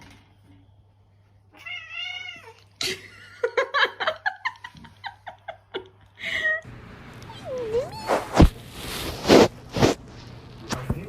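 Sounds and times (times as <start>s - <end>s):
cat meowing: 1.5s - 2.6s, 7.2s - 8.6s.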